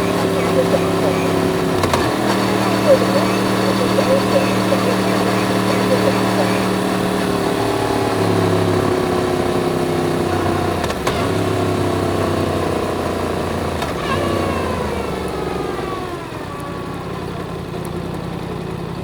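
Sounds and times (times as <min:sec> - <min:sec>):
motorcycle engine running: 0:00.0 - 0:14.2.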